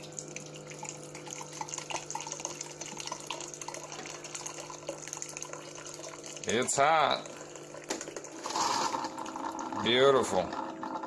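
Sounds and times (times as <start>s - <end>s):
water dripping into cup: 0.0s - 8.3s
coffee machine humming: 0.0s - 11.0s.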